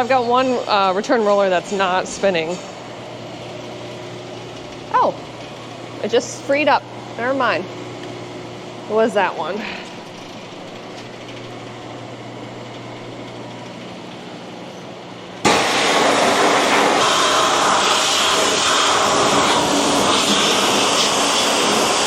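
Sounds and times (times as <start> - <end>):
low machine hum: 0.0 - 22.0
pressure washer water jet: 15.4 - 22.0.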